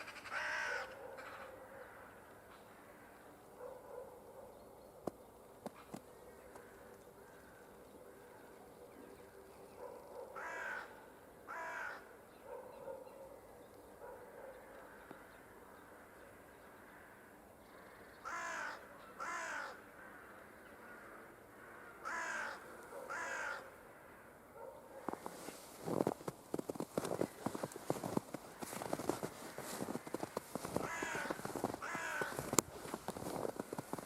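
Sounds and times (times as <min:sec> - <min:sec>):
crow cawing: 0:00.0 - 0:03.2, 0:10.4 - 0:12.1, 0:16.9 - 0:23.8, 0:28.7 - 0:33.7
footsteps crunching in snow: 0:25.0 - 0:34.0.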